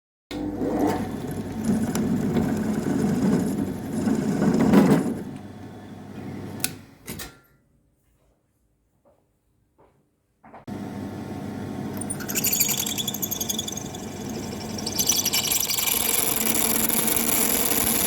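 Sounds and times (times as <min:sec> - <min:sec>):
power tool motor running: 0:11.9 - 0:18.0.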